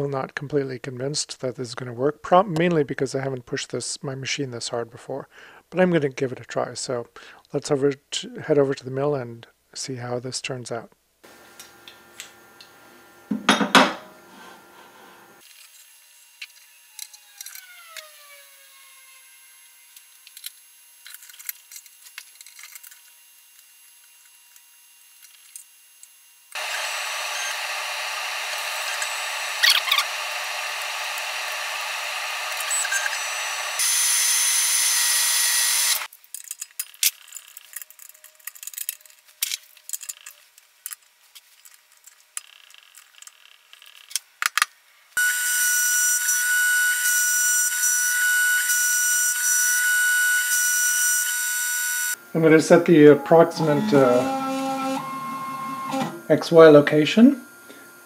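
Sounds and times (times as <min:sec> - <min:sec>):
milling machine running: 0:11.2 - 0:15.4, 0:26.6 - 0:36.1, 0:45.2 - 0:58.0.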